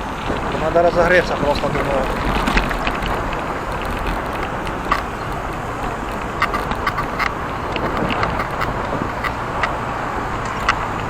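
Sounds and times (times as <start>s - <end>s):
bicycle riding rushing noise: 0.0s - 11.0s
bike clicks and rattles: 0.1s - 11.0s.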